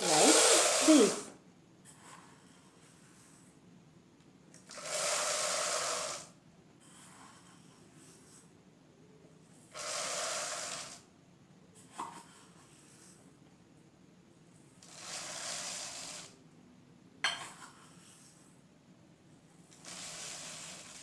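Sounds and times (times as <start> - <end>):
grains poured into plastic bottle: 0.0 - 1.2, 14.8 - 16.4, 19.7 - 21.0.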